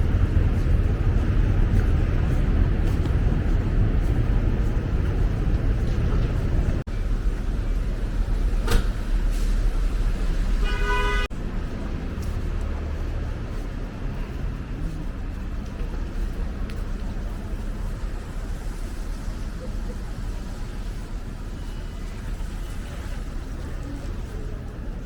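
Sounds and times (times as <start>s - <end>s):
traffic rumble: 0.0s - 25.0s
car horn toot: 10.6s - 11.3s.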